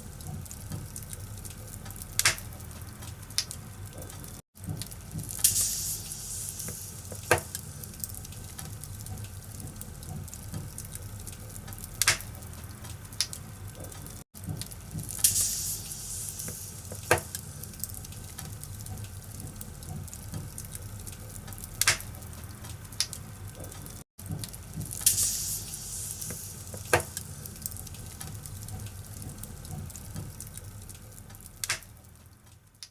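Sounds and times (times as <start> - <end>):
sharp fire snaps: 0.0 - 32.9
wood fire crackling: 0.0 - 32.9.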